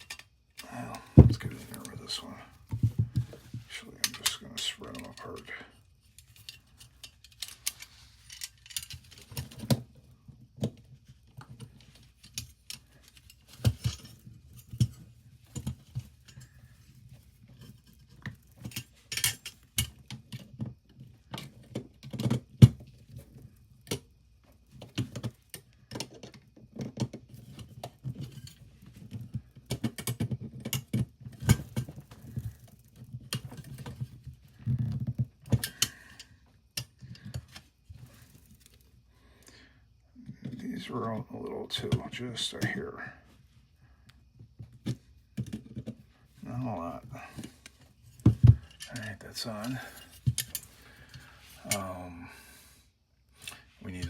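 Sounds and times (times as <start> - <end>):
metal toy parts clicking and rattling: 0.0 - 0.7, 4.0 - 9.8, 11.4 - 20.4, 24.9 - 38.9, 47.4 - 50.8.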